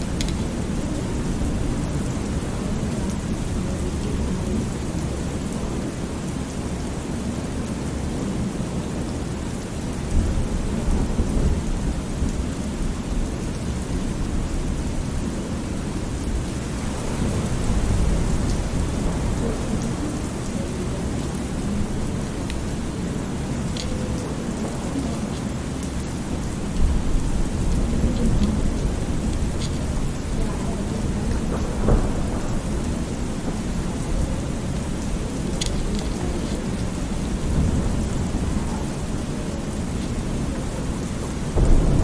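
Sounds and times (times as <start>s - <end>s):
steady rain: 0.0s - 42.0s
low rolling thunder: 10.0s - 42.0s.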